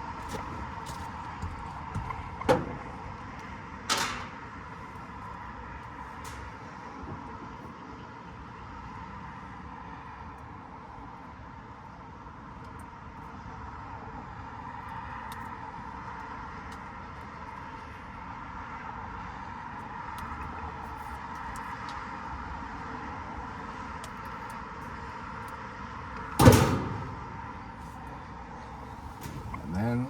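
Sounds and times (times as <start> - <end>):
loud clunk: 2.0 - 3.1, 3.9 - 4.4, 26.4 - 27.8
machinery hum: 26.3 - 30.0.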